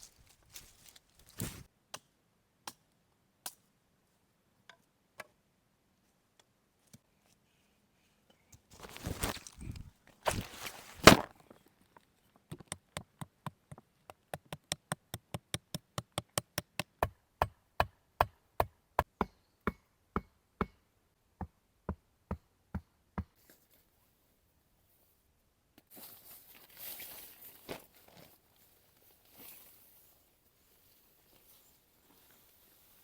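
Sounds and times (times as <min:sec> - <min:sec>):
rustling and scraping: 0:00.0 - 0:01.7, 0:08.7 - 0:12.2.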